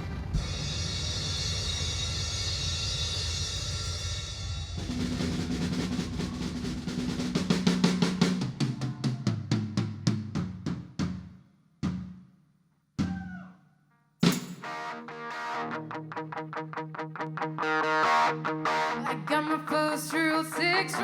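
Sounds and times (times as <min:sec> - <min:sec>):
drum roll: 0:00.0 - 0:12.2, 0:14.2 - 0:15.0.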